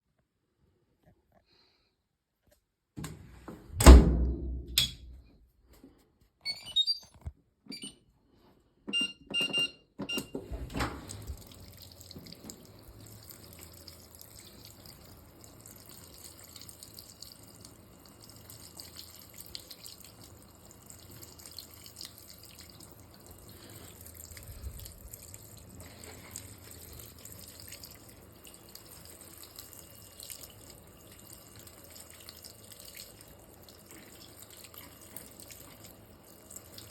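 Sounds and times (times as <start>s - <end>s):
washing machine filling with water: 8.9s - 36.9s.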